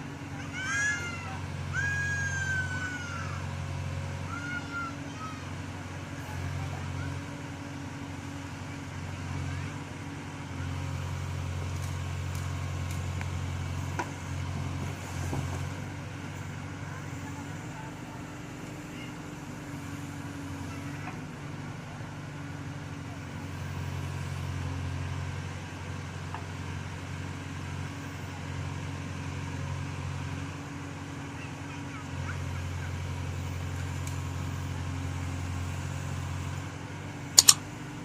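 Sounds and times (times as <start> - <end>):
diesel engine running: 0.0 - 38.0
high arching calls: 37.4 - 37.6.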